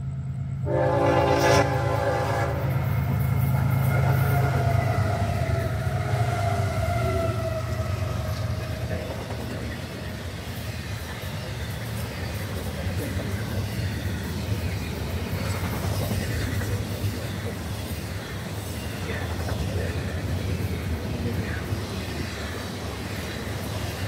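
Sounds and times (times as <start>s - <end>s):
freight train rumbling past: 0.0s - 24.0s
train horn chord: 0.6s - 2.7s.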